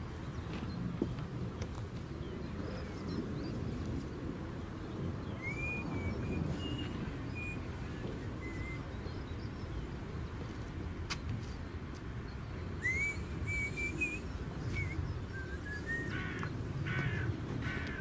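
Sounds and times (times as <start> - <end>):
bird whistling short notes: 12.8 - 16.2.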